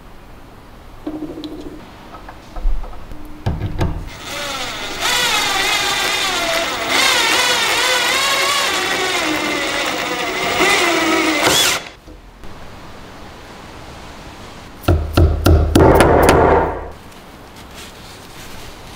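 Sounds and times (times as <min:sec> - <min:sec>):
power tool motor running: 0:04.1 - 0:12.0.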